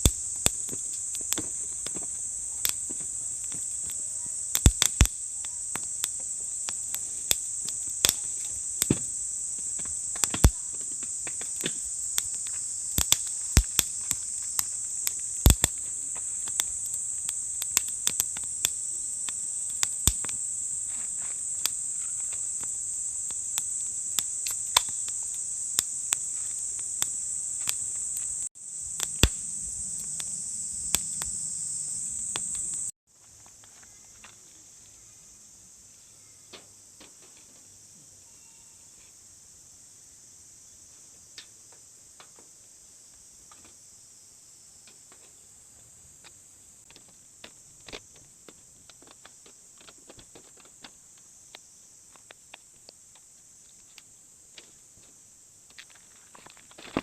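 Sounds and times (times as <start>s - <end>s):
campfire crackling and popping: 0.0s - 33.0s
insects chorus: 0.0s - 57.0s.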